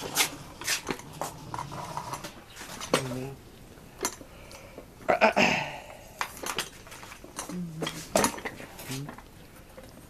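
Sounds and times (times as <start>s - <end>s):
scraping rustle: 0.0s - 3.4s
hard objects clicking and knocking: 6.2s - 9.3s.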